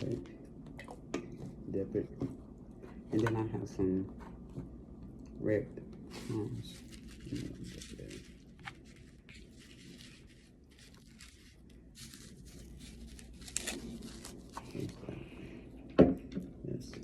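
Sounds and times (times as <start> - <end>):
food crinkling and crunching: 6.1 - 15.2.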